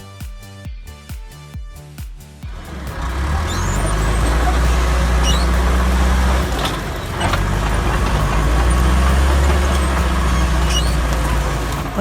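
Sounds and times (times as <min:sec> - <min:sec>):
bulldozer diesel engine under load: 0:02.6 - 0:12.0.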